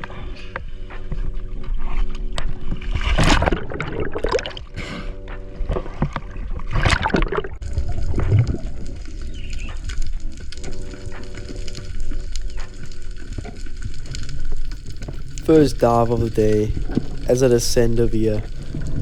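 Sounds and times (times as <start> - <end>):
water splashing around kayak: 1.0 - 5.0, 13.2 - 19.0
faint steady hum: 14.5 - 19.0.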